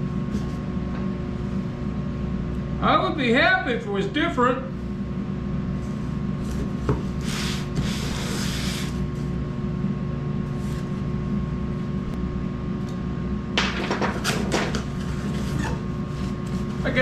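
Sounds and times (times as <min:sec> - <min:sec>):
knife cutting cardboard: 0:07.2 - 0:09.0.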